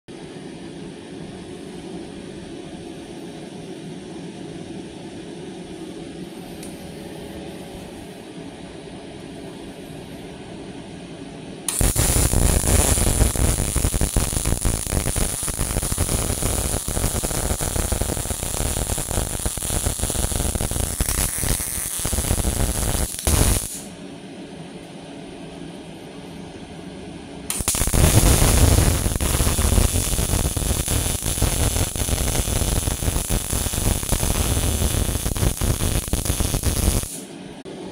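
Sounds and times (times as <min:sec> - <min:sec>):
steady low hum: 0:00.1 - 0:37.9
welding arc crackling: 0:11.7 - 0:23.9, 0:27.5 - 0:37.2.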